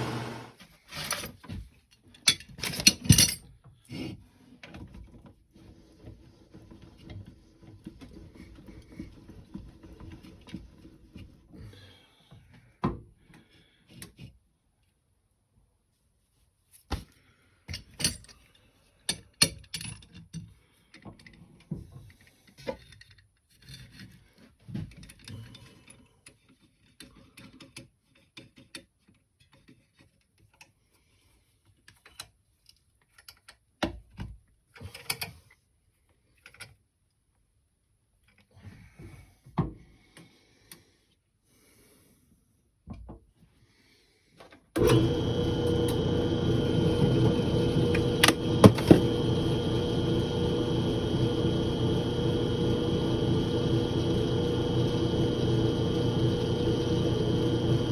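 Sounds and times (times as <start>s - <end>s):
power tool motor running: 0.0s - 0.6s, 44.8s - 57.9s.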